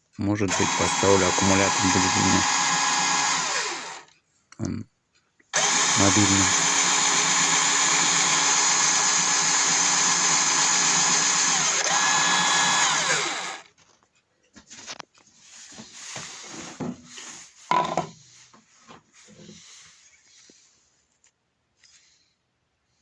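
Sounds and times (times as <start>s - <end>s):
drill press motor running: 0.5s - 4.1s, 5.6s - 13.7s.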